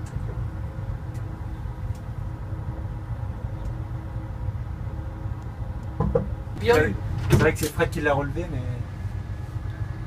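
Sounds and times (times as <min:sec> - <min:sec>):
train cab rumble and hum: 0:00.0 - 0:10.0
faint light ticks: 0:01.9 - 0:02.1.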